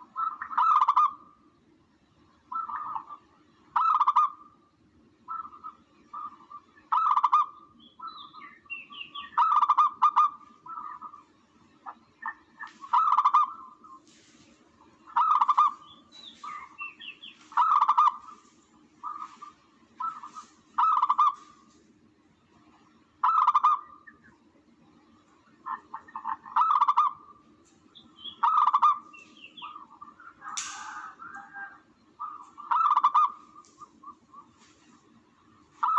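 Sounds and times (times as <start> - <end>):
steady low hum: 0.0 - 35.9
recorded dove cooing: 15.1 - 21.7, 28.3 - 34.8.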